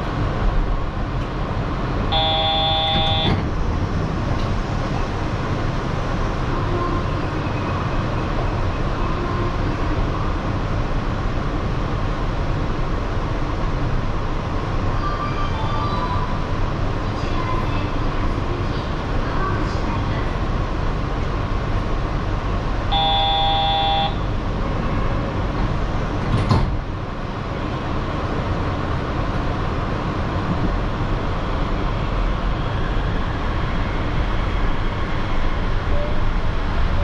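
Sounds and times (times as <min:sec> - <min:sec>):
train hum: 0:00.0 - 0:37.0
electronic buzzer tone: 0:02.2 - 0:03.4, 0:22.9 - 0:24.2
faint short tones: 0:02.2 - 0:03.4, 0:22.9 - 0:24.3.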